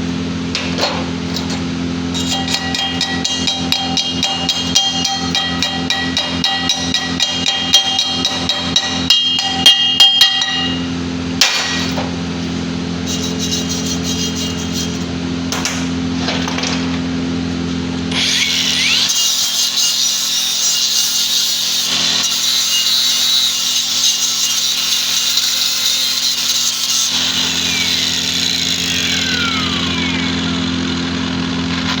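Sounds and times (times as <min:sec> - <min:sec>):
power tool whining on steel pipe: 0:01.3 - 0:10.9, 0:18.1 - 0:32.0.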